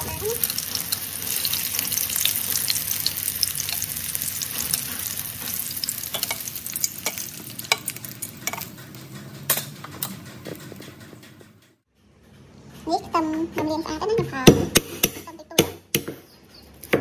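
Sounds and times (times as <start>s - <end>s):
tofu sizzling in hot oil: 0.0s - 8.2s
tongs clicking on wok: 6.1s - 8.7s.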